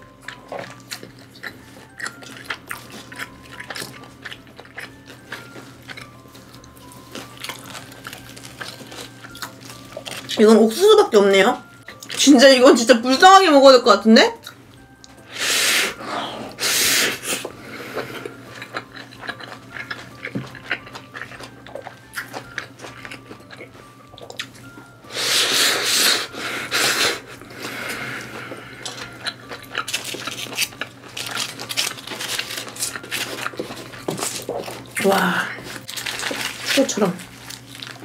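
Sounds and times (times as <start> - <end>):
close-miked chewing: 0.1 - 10.8, 17.2 - 24.7, 26.8 - 38.0.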